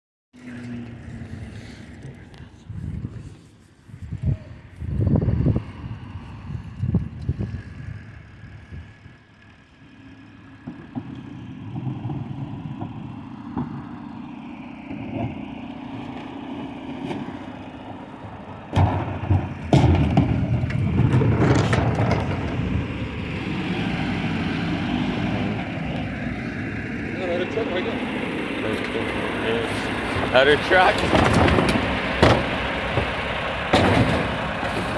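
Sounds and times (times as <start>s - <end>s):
diesel truck engine running: 0.4s - 34.9s.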